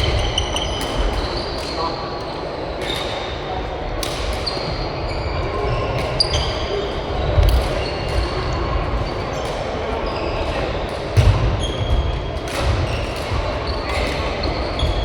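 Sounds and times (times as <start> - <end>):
murmur of voices: 0.0 - 15.0.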